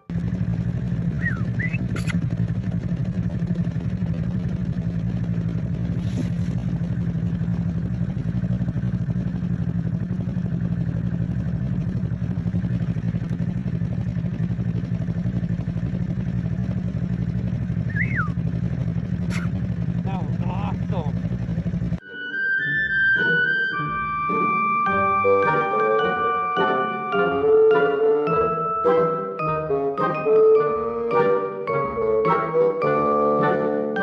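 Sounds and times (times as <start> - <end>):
vehicle engine idling: 0.0 - 22.0
short whistle: 1.1 - 2.2, 17.8 - 18.4.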